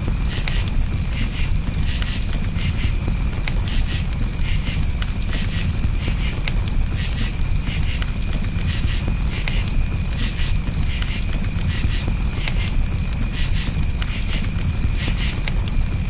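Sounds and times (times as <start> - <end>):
campfire crackling and popping: 0.0 - 16.0
crickets chirping: 0.0 - 16.0.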